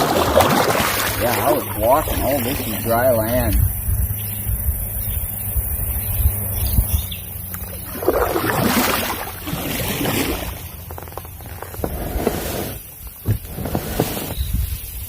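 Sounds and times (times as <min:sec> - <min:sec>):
kayak hull scraping: 0:00.0 - 0:03.6, 0:07.6 - 0:15.0
water sloshing: 0:00.0 - 0:03.6, 0:07.4 - 0:14.4
wind rumble on microphone: 0:00.0 - 0:15.0.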